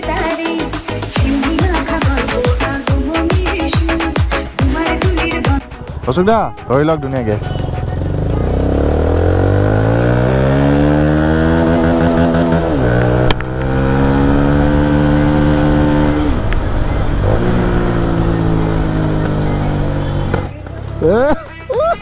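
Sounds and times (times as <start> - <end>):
motorcycle engine accelerating: 7.2 - 21.5.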